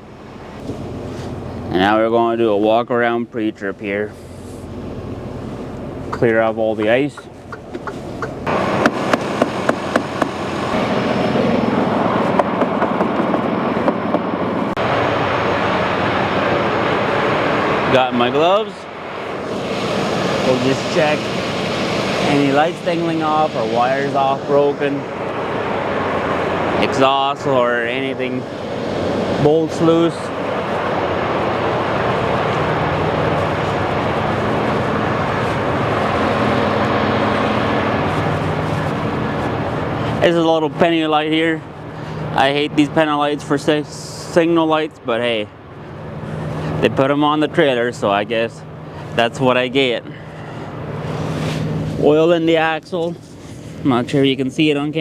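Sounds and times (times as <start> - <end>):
truck vehicle noise: 0.0 - 55.0.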